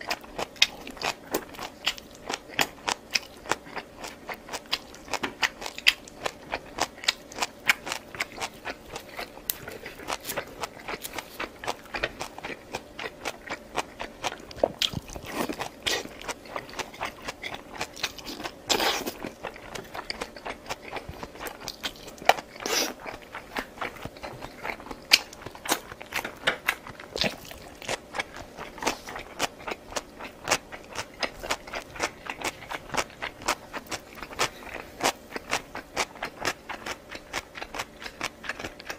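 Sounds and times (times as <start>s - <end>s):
chewing with mouth clicks: 0.0s - 38.9s.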